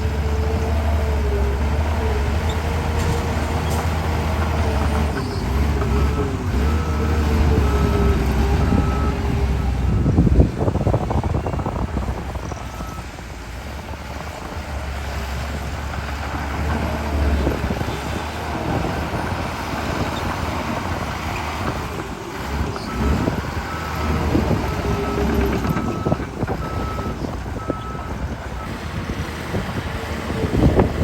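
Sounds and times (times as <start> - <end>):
diesel engine under load: 0.0 - 31.0
reversing alarm beeping: 5.9 - 9.2, 22.9 - 28.7.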